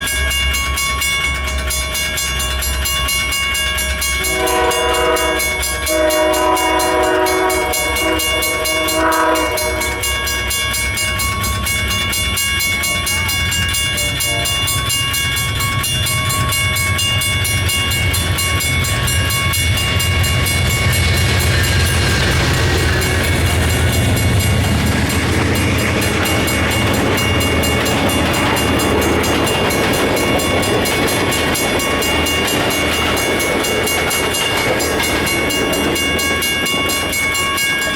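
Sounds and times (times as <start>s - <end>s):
diesel locomotive rumble: 0.0s - 37.9s
train wheels on rails: 0.0s - 37.9s
train horn blasts: 4.2s - 10.2s.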